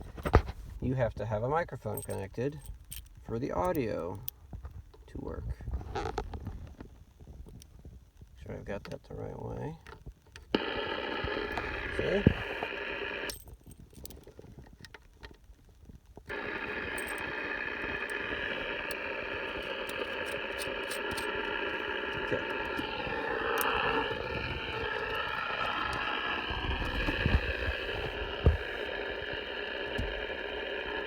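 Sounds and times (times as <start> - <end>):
radio receiver static hiss: 5.1 - 14.2, 16.0 - 31.0
small clicks: 9.8 - 31.0
faint wavering radio signal: 10.5 - 13.5, 16.3 - 31.0.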